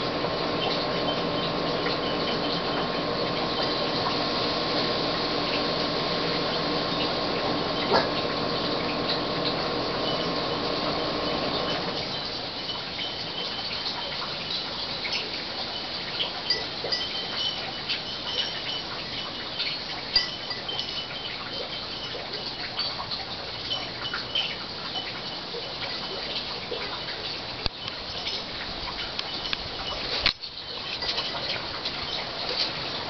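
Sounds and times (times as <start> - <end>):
small birds chirping: 0.0 - 4.3
steady outdoor hiss: 0.0 - 33.0.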